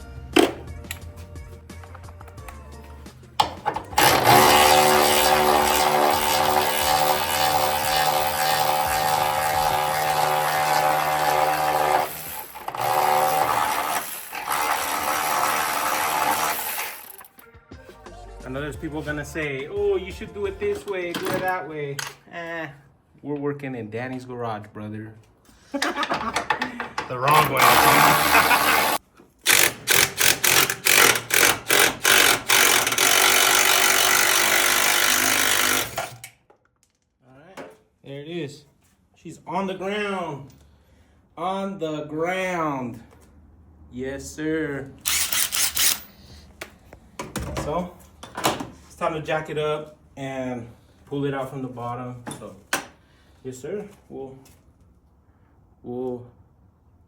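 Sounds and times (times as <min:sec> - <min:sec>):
power tool motor running: 0:04.0 - 0:17.3, 0:27.3 - 0:36.3, 0:45.0 - 0:46.4.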